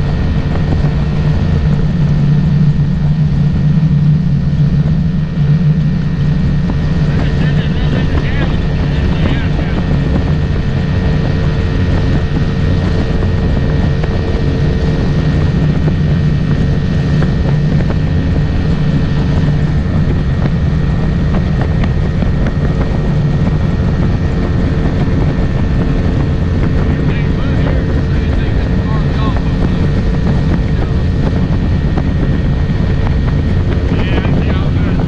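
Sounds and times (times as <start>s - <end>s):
boat motor droning: 0.0s - 35.0s
rushing water: 0.0s - 35.0s
wind noise: 0.0s - 35.0s.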